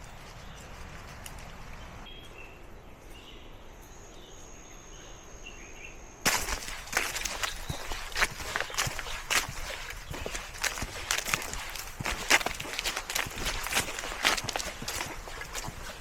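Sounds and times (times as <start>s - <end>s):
crunching footsteps on trail: 0.0s - 2.6s, 6.2s - 16.0s.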